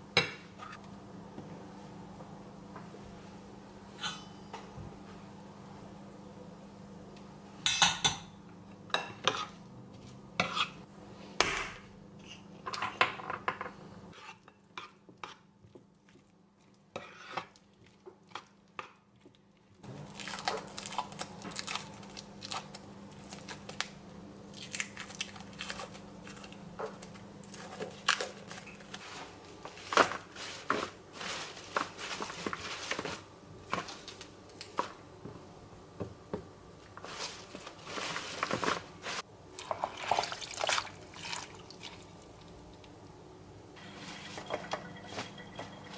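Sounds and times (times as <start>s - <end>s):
low steady hum: 19.2s - 45.9s.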